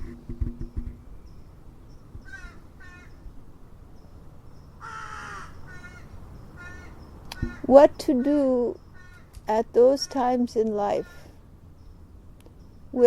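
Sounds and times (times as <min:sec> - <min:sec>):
bird calling harshly: 0:02.2 - 0:03.2, 0:04.8 - 0:11.4.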